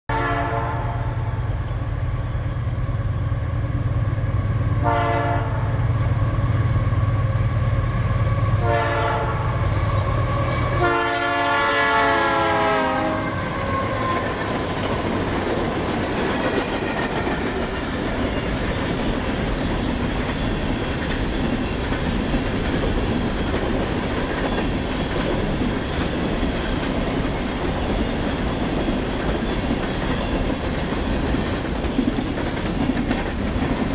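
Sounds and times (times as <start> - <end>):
train horn blasts: 0.1 - 1.8, 4.7 - 5.9, 8.2 - 14.4
locomotive engine rumbling: 0.6 - 26.8
train wheels clattering on rails: 1.6 - 33.9.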